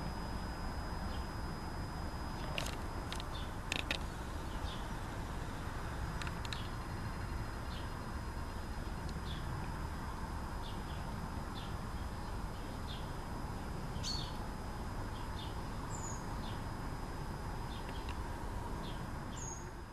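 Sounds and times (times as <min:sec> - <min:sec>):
steady low rumble: 0:00.0 - 0:19.9
small birds chirping: 0:02.3 - 0:05.2, 0:06.1 - 0:08.1, 0:08.7 - 0:09.7, 0:10.6 - 0:13.2, 0:13.9 - 0:14.4, 0:15.1 - 0:16.7, 0:17.6 - 0:19.8.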